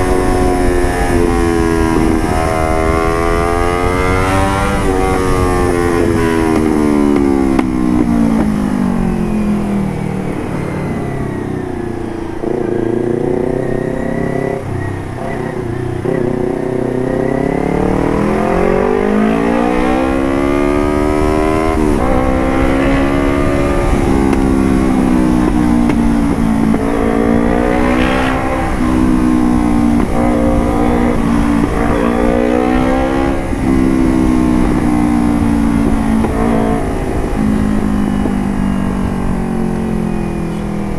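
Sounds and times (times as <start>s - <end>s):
motorcycle engine: 0.0s - 40.9s.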